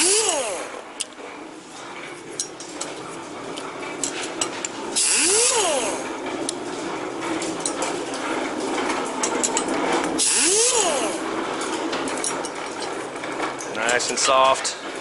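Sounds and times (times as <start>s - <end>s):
grinder motor whining: 0.0s - 0.8s, 5.0s - 6.1s, 10.2s - 11.3s
valve seat grinder grinding: 0.0s - 0.8s, 5.0s - 6.1s, 10.2s - 11.3s.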